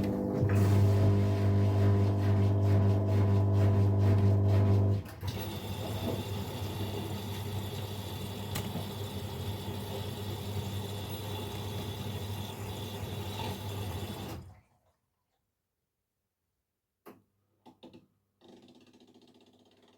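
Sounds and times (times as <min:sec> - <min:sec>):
water rushing into washing machine: 0:00.0 - 0:14.9.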